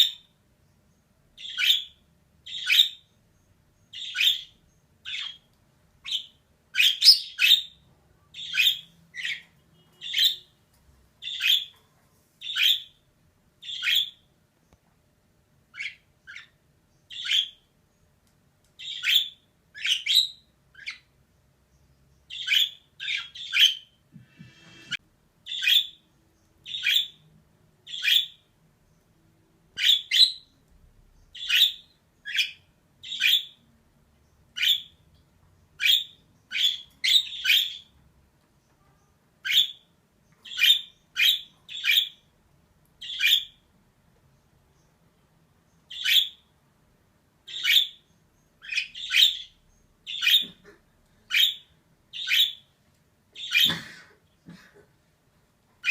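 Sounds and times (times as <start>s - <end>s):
budgerigar chirping: 1.4s - 3.1s, 3.9s - 7.8s, 8.4s - 10.5s, 11.2s - 11.7s, 12.4s - 13.0s, 13.6s - 14.2s, 15.7s - 17.6s, 18.8s - 21.1s, 22.3s - 23.9s, 24.5s - 26.0s, 26.6s - 27.2s, 27.8s - 28.5s, 29.8s - 30.5s, 31.3s - 33.6s, 34.5s - 35.0s, 35.8s - 38.0s, 39.4s - 42.2s, 43.0s - 43.6s, 45.9s - 46.4s, 47.4s - 50.7s, 51.3s - 52.7s, 53.4s - 53.8s.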